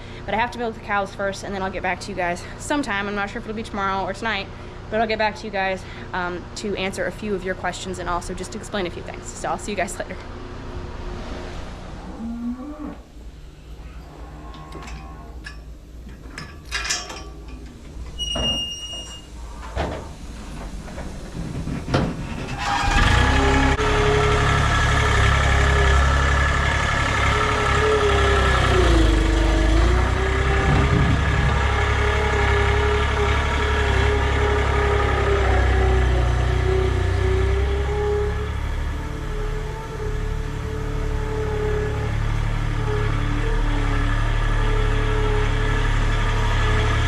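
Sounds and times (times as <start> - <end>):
engine starting and running: 13.2 - 47.0.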